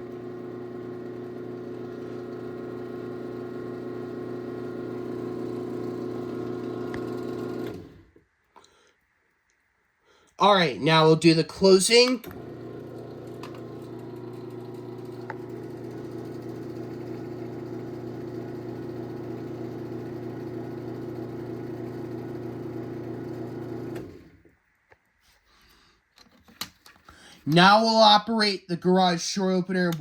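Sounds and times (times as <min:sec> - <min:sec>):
garage door opener motor humming: 0:00.0 - 0:08.2, 0:12.2 - 0:24.4.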